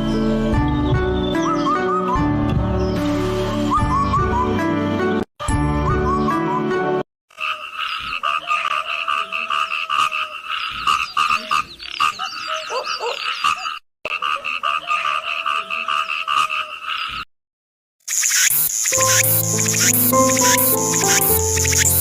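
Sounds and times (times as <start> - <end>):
frogs calling: 18.1 - 22.0
higher chirps: 18.2 - 22.0.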